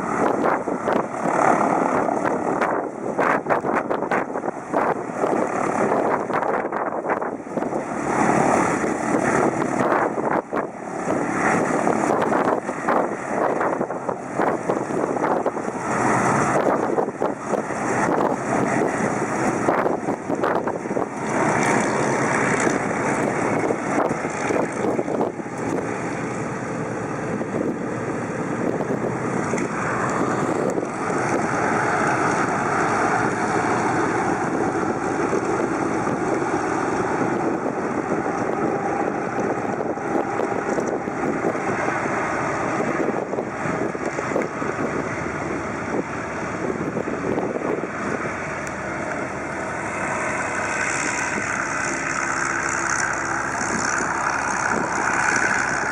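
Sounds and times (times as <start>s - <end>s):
propeller engine running: 0.0s - 55.9s
wind buffeting microphone: 0.0s - 55.9s.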